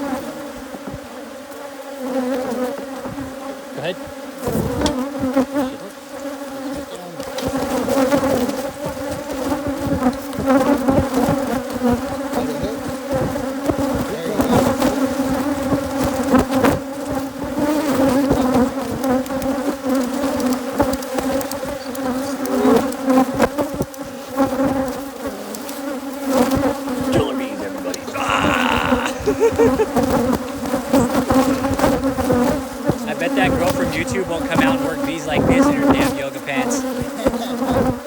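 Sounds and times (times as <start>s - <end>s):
bees buzzing: 0.0s - 38.0s
rustles: 13.2s - 38.0s.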